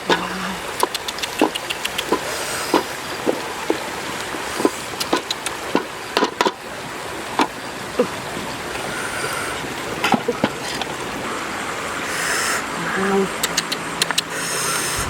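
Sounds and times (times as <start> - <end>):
fire hissing: 14.7 - 15.0.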